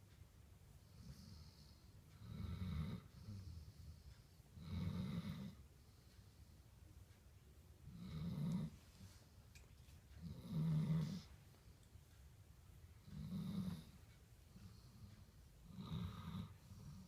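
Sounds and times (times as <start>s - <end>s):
quiet breathing: 0.0s - 17.0s
dog snoring: 0.8s - 5.6s, 7.9s - 8.8s, 10.2s - 11.3s, 13.0s - 17.0s.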